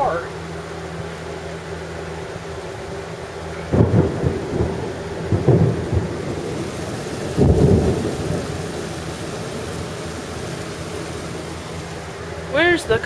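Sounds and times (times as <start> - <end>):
heavy rain: 0.0 - 13.0
thunder rolling: 3.6 - 12.6.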